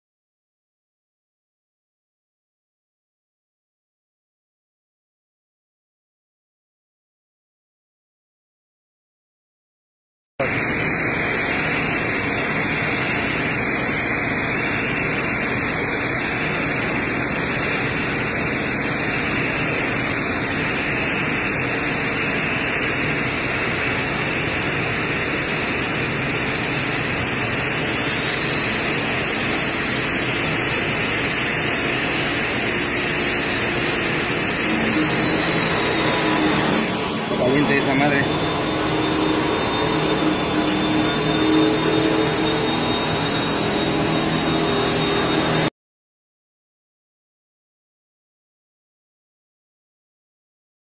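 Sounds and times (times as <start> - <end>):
welding arc hissing: 10.4 - 43.5.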